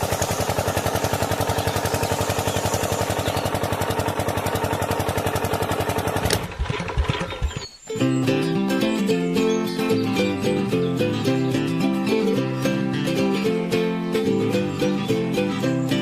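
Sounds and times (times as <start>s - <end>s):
tractor engine idling: 0.0s - 7.8s
music: 7.9s - 16.0s.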